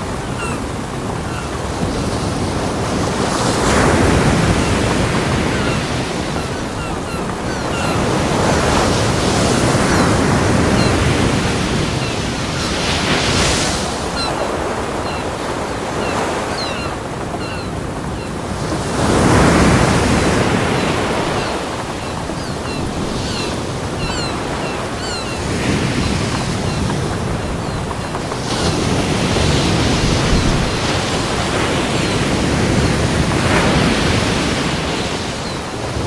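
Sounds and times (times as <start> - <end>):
ocean waves breaking on beach: 0.0 - 36.0.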